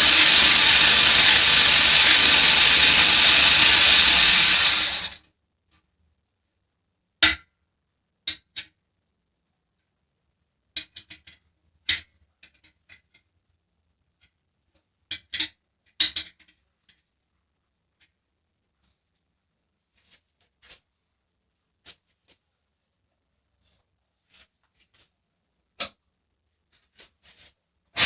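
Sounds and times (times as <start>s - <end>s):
hard objects clicking and knocking: 8.2s - 8.8s, 10.7s - 13.4s, 14.1s - 17.2s.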